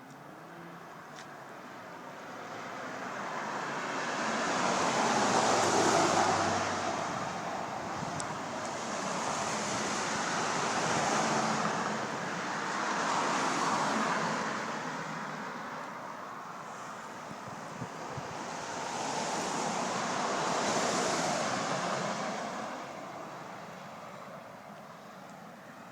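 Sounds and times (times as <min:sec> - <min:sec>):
wind on microphone: 0:06.5 - 0:09.9, 0:17.3 - 0:19.6.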